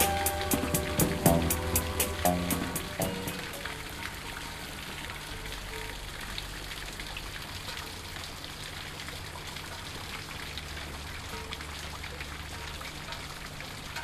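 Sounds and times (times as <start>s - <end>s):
low steady rumble: 0.0s - 6.6s
rain on foliage: 0.0s - 14.0s.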